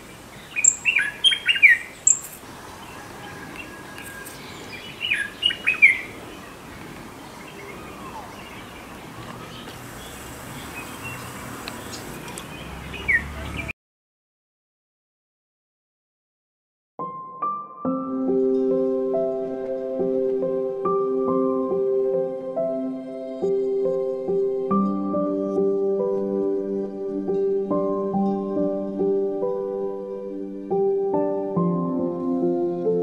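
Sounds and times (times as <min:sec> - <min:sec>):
faint outdoor hiss: 0:00.0 - 0:13.4
birds chirping: 0:00.0 - 0:13.7.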